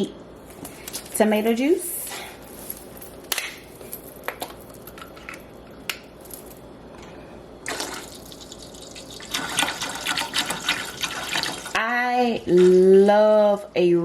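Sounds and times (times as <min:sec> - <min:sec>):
liquid pouring into pot: 0:07.6 - 0:11.8.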